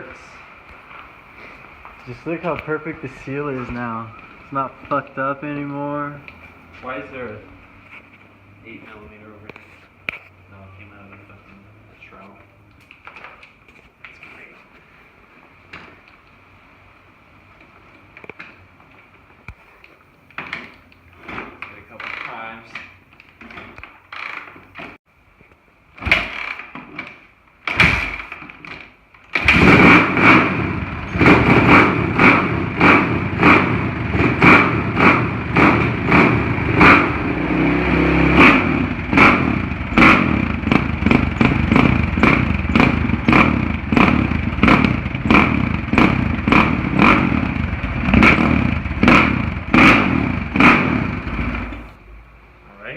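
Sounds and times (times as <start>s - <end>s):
dirt bike engine revving: 29.4s - 51.9s.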